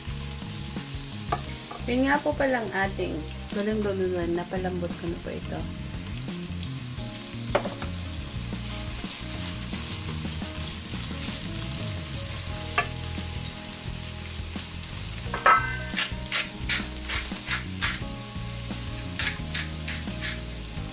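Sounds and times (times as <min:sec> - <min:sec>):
onion and garlic sizzling in oil: 0:00.0 - 0:20.9
spatula clicking against pot: 0:19.2 - 0:20.4.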